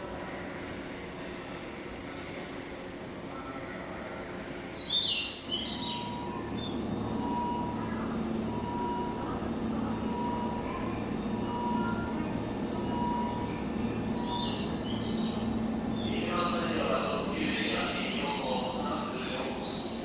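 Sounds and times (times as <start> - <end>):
birds chirping: 5.0 - 20.0
electric train humming: 5.6 - 20.0.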